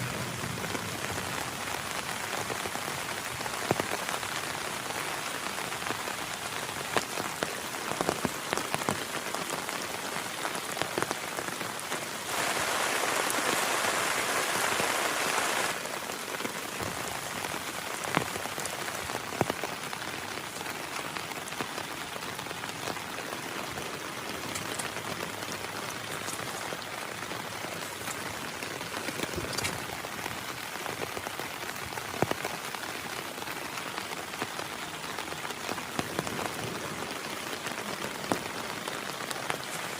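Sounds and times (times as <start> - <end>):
heavy rain falling: 0.0 - 39.9
raindrops ticking close by: 0.0 - 39.9.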